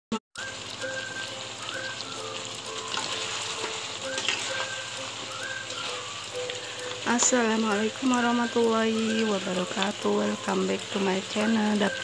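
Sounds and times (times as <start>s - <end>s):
chicken wings sizzling in a wok: 0.4s - 12.0s.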